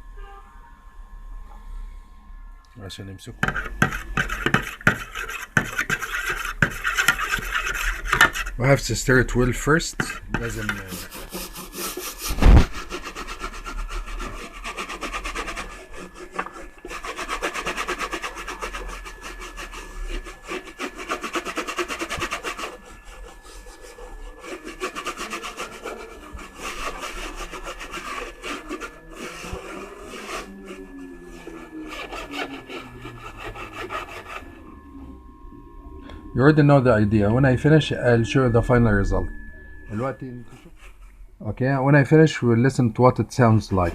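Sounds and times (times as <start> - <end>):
scrubbing plastic case: 3.4 - 8.6, 10.0 - 19.1.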